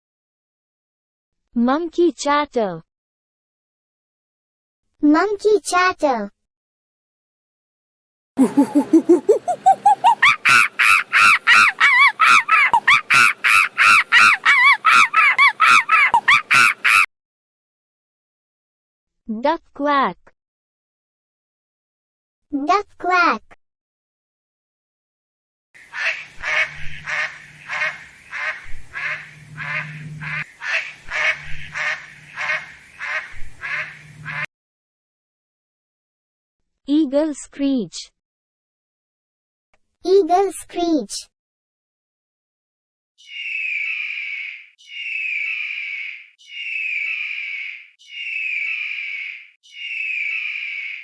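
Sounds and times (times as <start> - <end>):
monkey chattering: 8.4 - 17.0
duck quacking: 9.5 - 17.0, 25.8 - 34.5.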